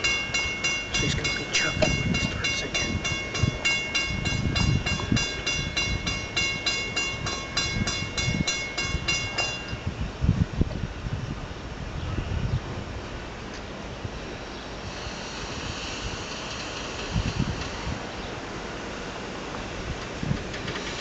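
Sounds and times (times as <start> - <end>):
railroad crossing bell ringing: 0.0 - 10.0
train rumbling and clattering past: 0.0 - 10.1, 14.2 - 21.0.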